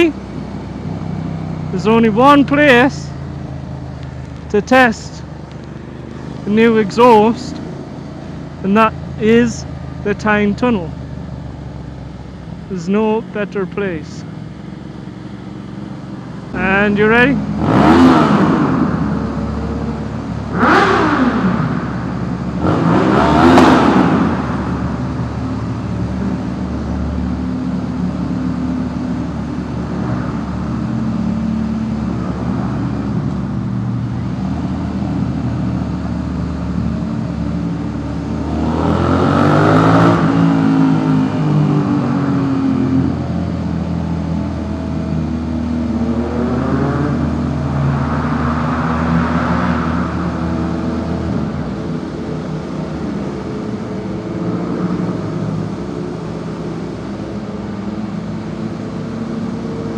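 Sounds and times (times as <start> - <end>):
motorcycle engine revving: 14.2 - 59.9.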